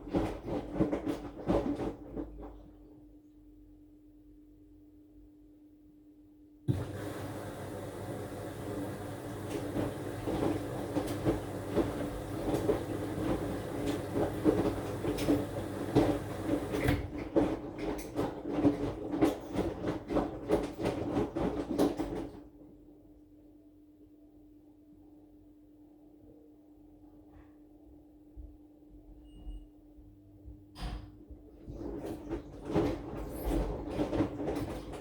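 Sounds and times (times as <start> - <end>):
laundry tumbling thumps: 0.0 - 2.8, 6.7 - 22.5, 31.3 - 35.0
washing machine motor hum: 0.0 - 3.2, 6.7 - 23.1, 30.5 - 35.0.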